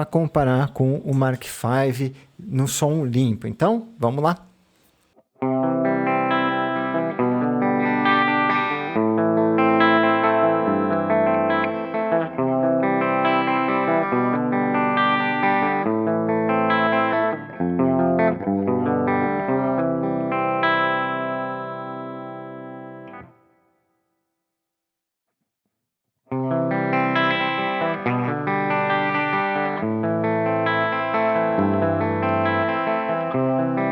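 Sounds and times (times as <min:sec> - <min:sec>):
clean electric guitar chords: 0:05.4 - 0:23.6, 0:26.3 - 0:33.9.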